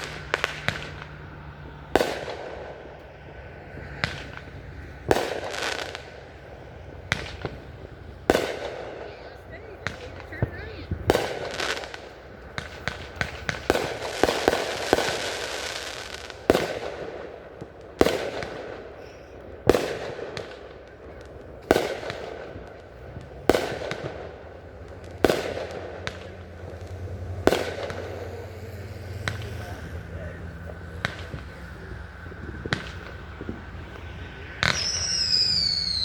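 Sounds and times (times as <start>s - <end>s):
aerial firework bursts echoing: 0.0s - 36.0s
fireworks bangs and crackling: 0.0s - 36.0s.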